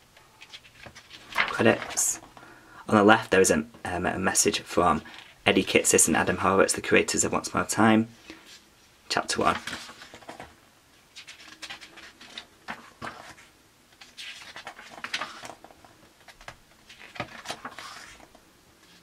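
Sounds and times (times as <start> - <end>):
book pages turning: 0.4 - 2.4, 9.4 - 19.0
paper swishes: 16.8 - 19.0.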